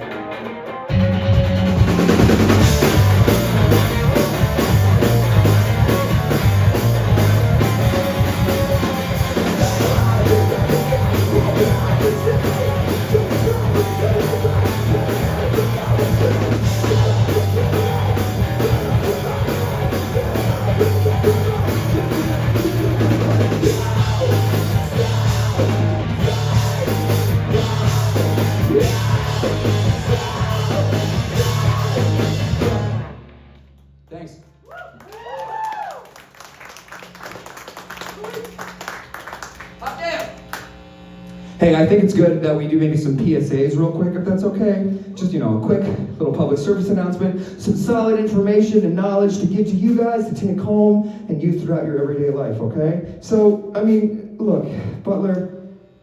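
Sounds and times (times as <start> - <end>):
drum kit: 0.0 - 33.6
live rock band playing: 0.0 - 33.6.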